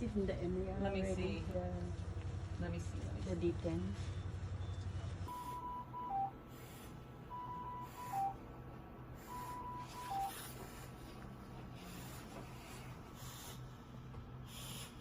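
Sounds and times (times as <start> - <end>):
electronic alert chime: 5.3 - 6.4, 7.3 - 8.4, 9.3 - 10.3
soft breathy noises: 9.0 - 15.0.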